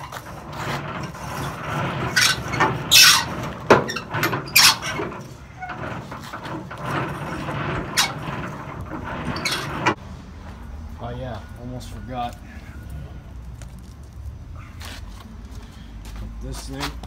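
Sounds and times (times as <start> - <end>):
metal parts scraping and squealing: 0.0 - 10.0.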